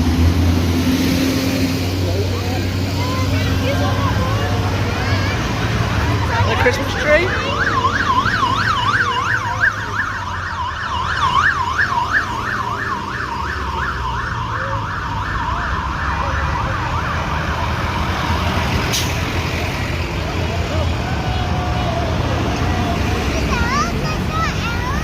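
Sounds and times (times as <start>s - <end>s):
passing vehicle engines rumbling: 0.0s - 25.0s
siren yelping: 6.0s - 18.6s.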